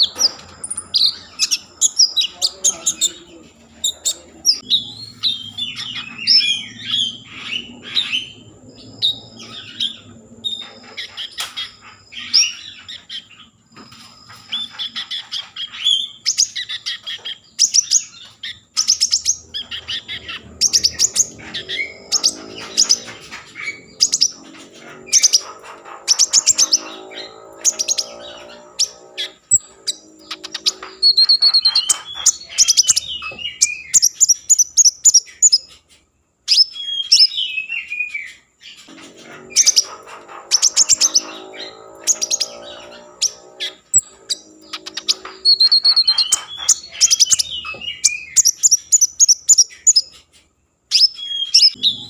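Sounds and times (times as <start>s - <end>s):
songbird singing chirps and trills: 0.0s - 52.0s.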